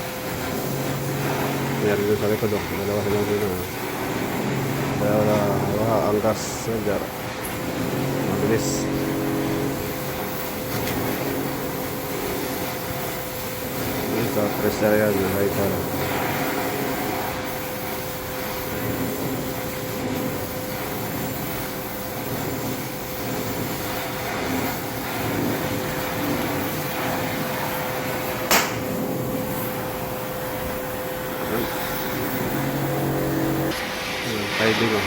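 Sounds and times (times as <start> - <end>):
constant hum: 0.0 - 35.0
welding torch flame rushing: 0.0 - 35.0
sharp metallic knock: 28.5 - 28.9.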